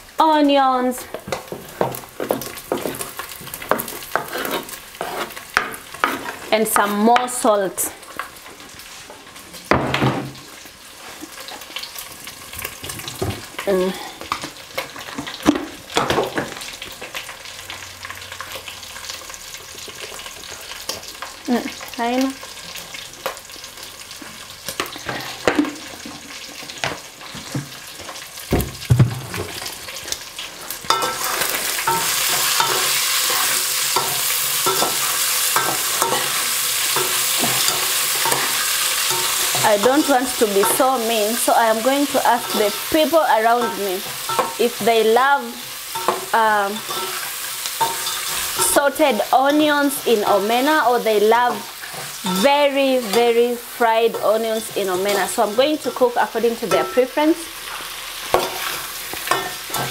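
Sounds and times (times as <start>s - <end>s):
fish and onions frying in a pot: 0.0s - 59.9s
metal spoon scraping a pot: 3.7s - 7.0s, 30.9s - 41.1s, 42.3s - 44.6s, 46.0s - 48.8s.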